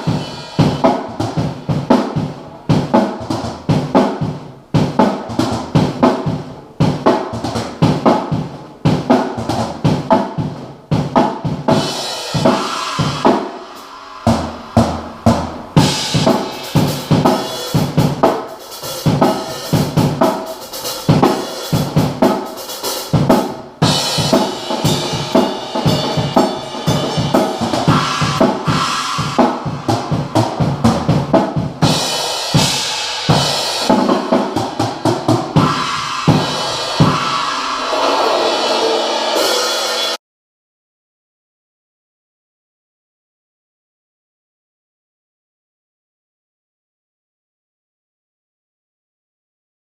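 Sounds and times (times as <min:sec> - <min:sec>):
cymbals ringing: 0:00.0 - 0:00.9, 0:11.8 - 0:23.0, 0:23.8 - 0:30.9, 0:31.8 - 0:40.2
snare and bass drum strokes: 0:00.0 - 0:40.2.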